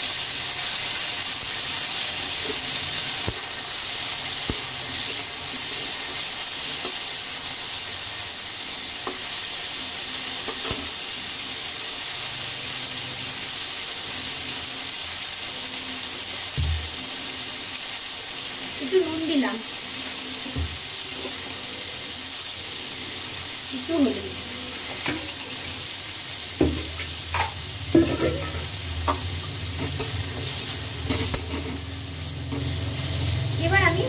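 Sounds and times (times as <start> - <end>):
food sizzling in oil: 0.0 - 34.0.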